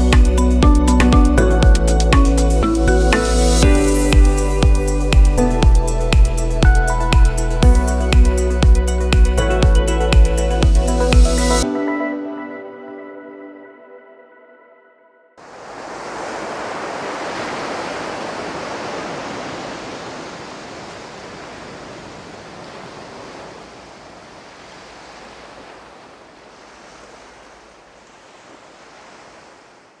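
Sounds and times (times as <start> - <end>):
ocean surf wash: 15.4 - 30.0.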